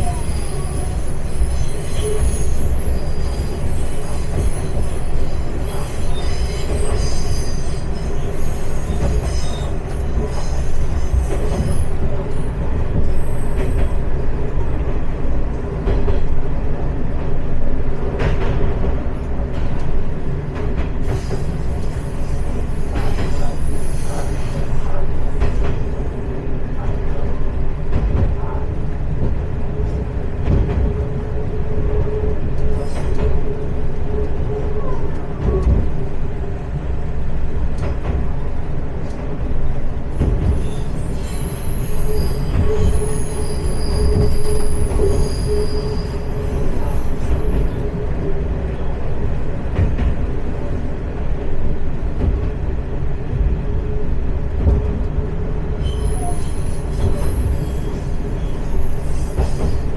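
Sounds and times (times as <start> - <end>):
high wheel squeals: 0.0 - 14.0, 40.5 - 48.0, 55.8 - 59.9
railcar engine and wheels rumbling: 0.0 - 59.9.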